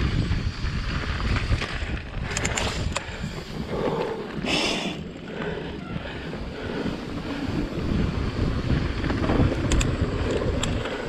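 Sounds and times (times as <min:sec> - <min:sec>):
bike rattling: 0:00.0 - 0:11.0
tyres rumbling on dirt trail: 0:00.0 - 0:11.0
wind buffeting microphone: 0:00.0 - 0:11.0
sharp clicks: 0:02.2 - 0:03.1, 0:09.5 - 0:10.8.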